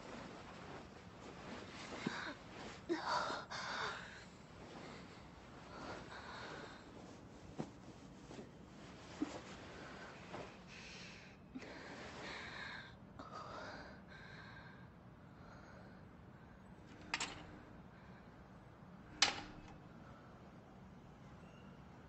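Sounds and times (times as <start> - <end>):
woman gasping and groaning: 1.9 - 4.3.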